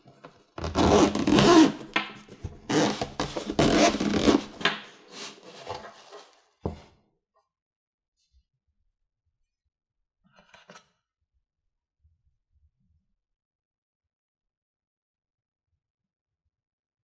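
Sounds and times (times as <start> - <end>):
cardboard and plastic scraping: 0.1 - 6.9
packaging rustling: 2.7 - 6.4.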